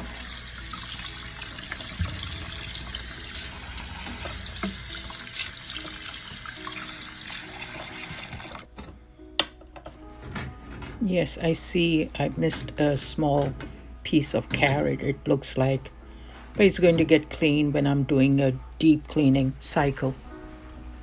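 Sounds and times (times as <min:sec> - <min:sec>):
water splashing from tap: 0:00.0 - 0:08.7.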